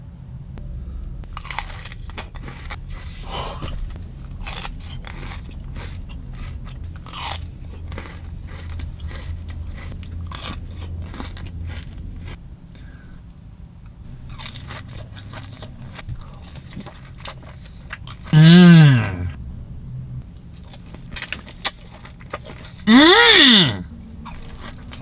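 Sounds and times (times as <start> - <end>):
steady low hum: 0.0 - 20.6
chewing and crunching grass: 1.4 - 12.9, 13.8 - 18.4, 20.5 - 22.9, 23.9 - 25.0.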